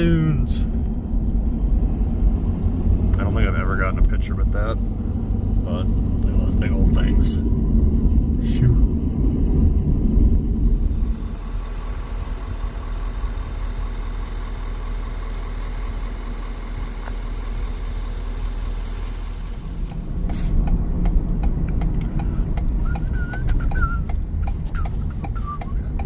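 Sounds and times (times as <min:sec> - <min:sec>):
engine and road rumble: 0:00.0 - 0:26.0
turn signal ticking: 0:19.5 - 0:26.0.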